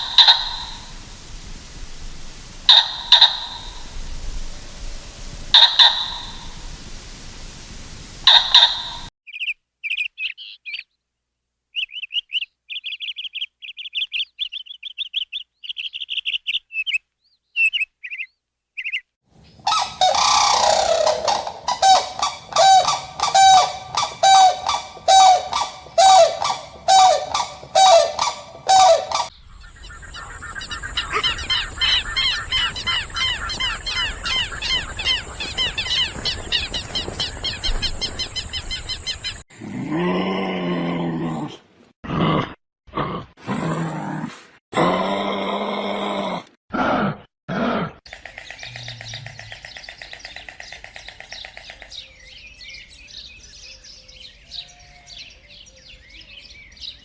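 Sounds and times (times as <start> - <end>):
bird honking calls: 0.0 - 0.9, 19.6 - 29.3
steady high hiss: 0.0 - 9.1, 19.6 - 29.3
high bird chirps: 19.6 - 29.3.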